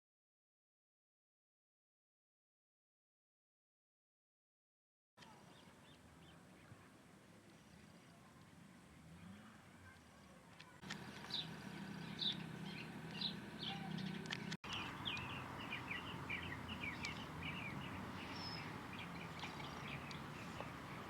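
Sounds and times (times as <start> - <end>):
small birds chirping: 5.2 - 21.0.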